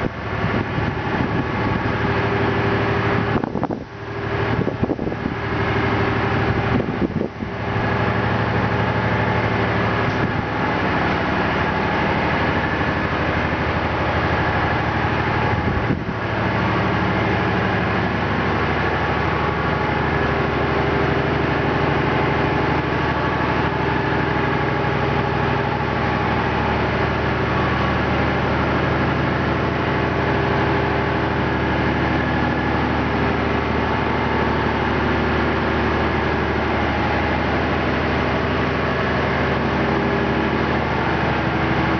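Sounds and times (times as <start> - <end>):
engine room machinery drone: 0.0 - 41.9.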